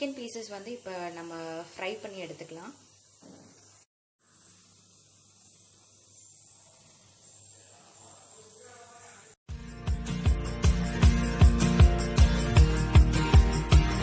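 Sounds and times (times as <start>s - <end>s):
chicken sizzling in hot oil: 0.0s - 9.4s.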